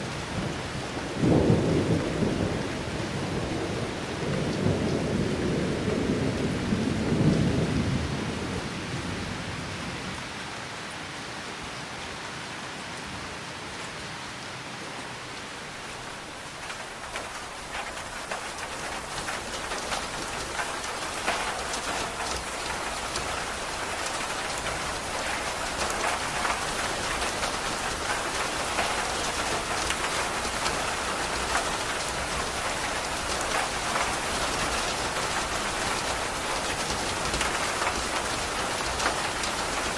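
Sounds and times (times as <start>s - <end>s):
steady rain: 0.0s - 39.9s
thunder rumbling: 0.3s - 9.5s.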